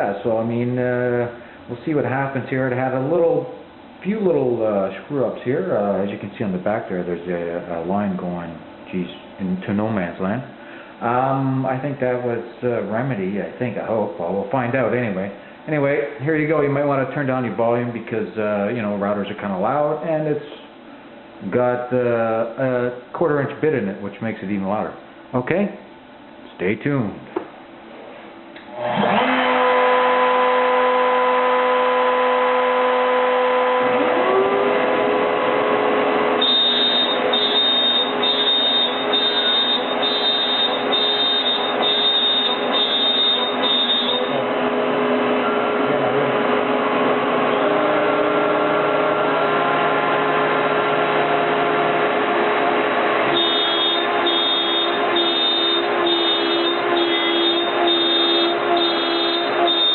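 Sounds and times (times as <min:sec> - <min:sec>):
router spindle whining: 0:28.6 - 0:59.9
high pulsing tone: 0:36.4 - 0:44.6, 0:53.3 - 0:59.9.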